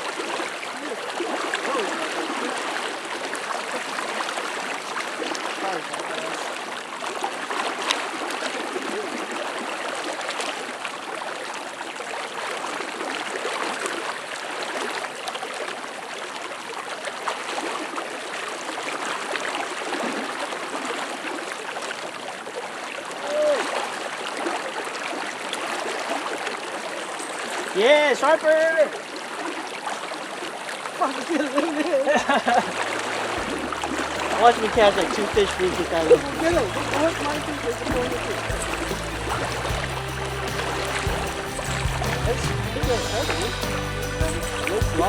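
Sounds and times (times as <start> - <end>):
fast-flowing river water: 0.0 - 45.0.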